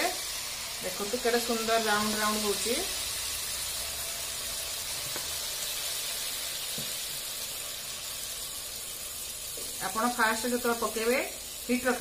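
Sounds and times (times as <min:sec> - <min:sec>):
batter sizzling in hot oil: 0:00.0 - 0:12.0.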